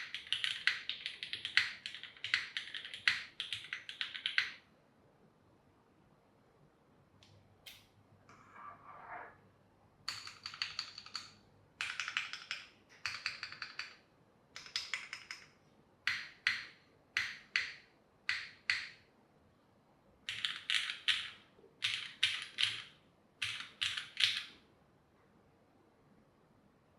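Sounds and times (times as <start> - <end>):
mechanical keyboard typing: 0.0 - 4.6, 10.1 - 14.0, 14.6 - 15.5, 20.3 - 24.5.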